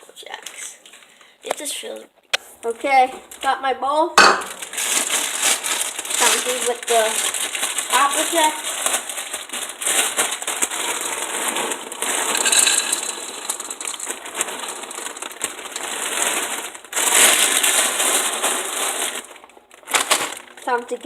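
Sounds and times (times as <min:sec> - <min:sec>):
cereal pouring into a bowl: 0:04.5 - 0:20.3.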